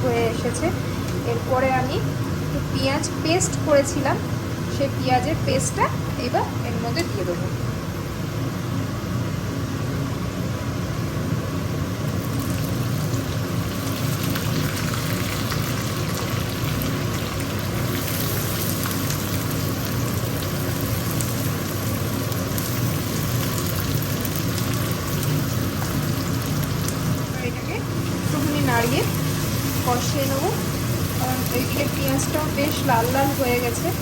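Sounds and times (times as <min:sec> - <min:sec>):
low steady hum: 0:00.0 - 0:34.0
onions sizzling in hot oil: 0:11.9 - 0:34.0.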